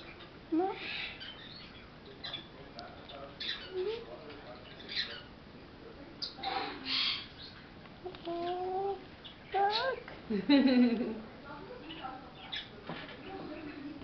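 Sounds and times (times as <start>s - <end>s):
parrot chattering: 8.2s - 10.0s.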